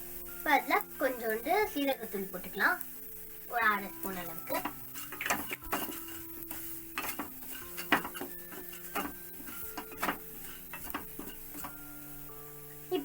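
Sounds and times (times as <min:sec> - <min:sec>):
soft background music: 0:00.0 - 0:13.0
spoon scraping a metal pan: 0:03.9 - 0:12.2.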